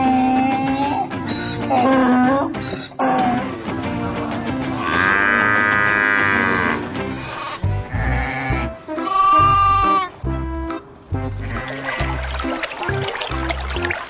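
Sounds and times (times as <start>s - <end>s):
background music with steady beat: 0.0s - 14.0s
farm animal bleating: 4.8s - 12.4s.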